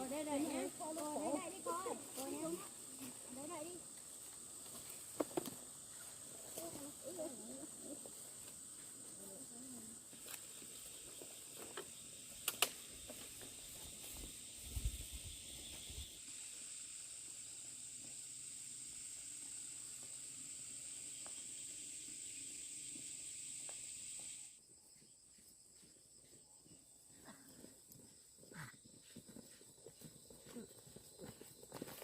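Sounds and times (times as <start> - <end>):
insects shrilling: 0.0 - 24.6.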